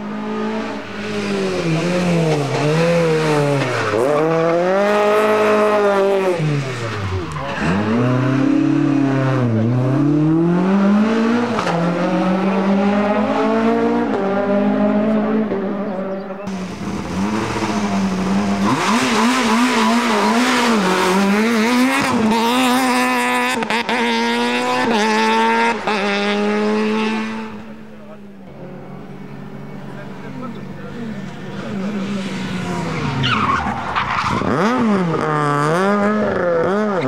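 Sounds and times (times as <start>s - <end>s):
rally car engines revving: 0.0s - 37.0s.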